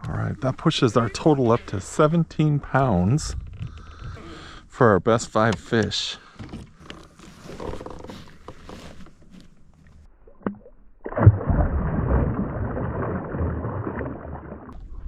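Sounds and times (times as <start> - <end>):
water sloshing and gurgling: 6.8 - 15.0.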